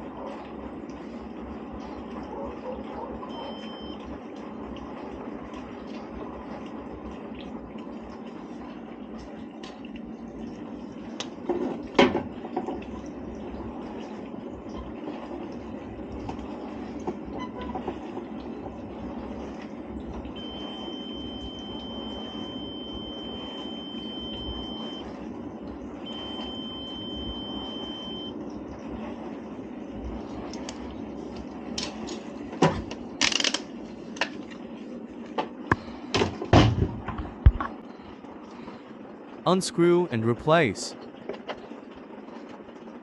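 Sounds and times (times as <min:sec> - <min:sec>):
low steady hum: 0:00.0 - 0:43.0
multimeter beeping: 0:03.3 - 0:04.0, 0:20.4 - 0:25.0, 0:26.1 - 0:28.3.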